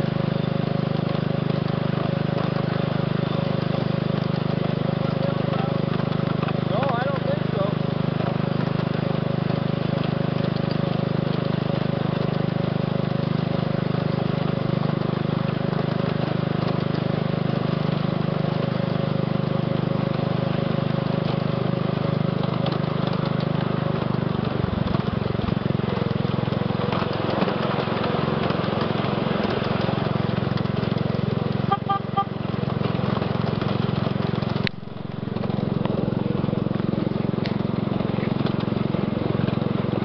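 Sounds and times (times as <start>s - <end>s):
small locomotive engine droning: 0.0s - 40.0s.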